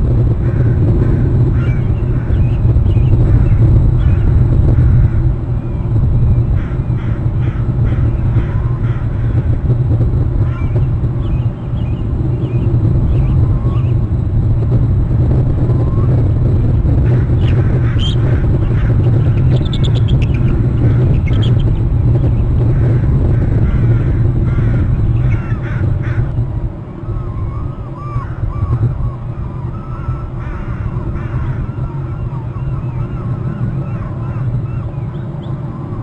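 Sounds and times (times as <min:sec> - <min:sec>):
high chittering notes: 0:00.0 - 0:26.6
steady low rumble: 0:00.0 - 0:36.0
eagle calling: 0:16.9 - 0:26.3, 0:27.0 - 0:36.0.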